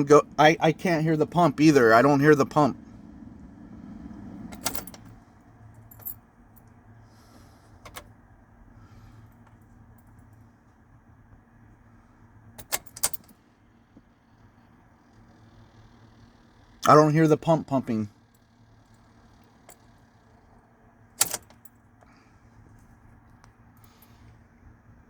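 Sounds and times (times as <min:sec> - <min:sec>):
faint low hum: 0:00.0 - 0:25.0
keys jangling in ignition: 0:04.4 - 0:06.7, 0:12.6 - 0:13.4, 0:21.2 - 0:21.8.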